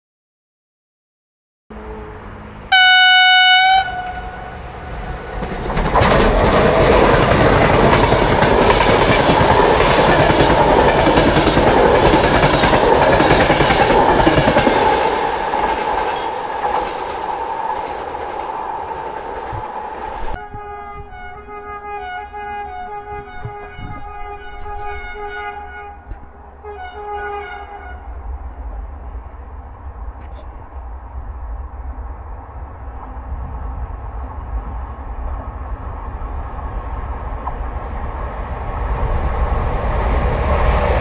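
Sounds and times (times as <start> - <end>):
train horn blast: 1.7 - 4.8, 20.4 - 28.2
passenger train clattering past: 1.8 - 41.0.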